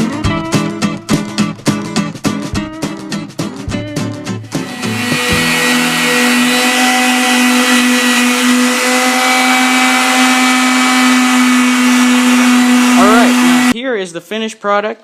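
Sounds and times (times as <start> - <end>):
motor humming: 4.5 - 13.8.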